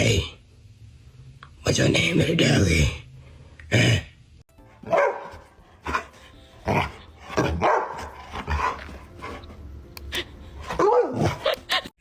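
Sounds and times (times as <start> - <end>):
small dog barking: 4.8 - 5.4, 7.4 - 8.2.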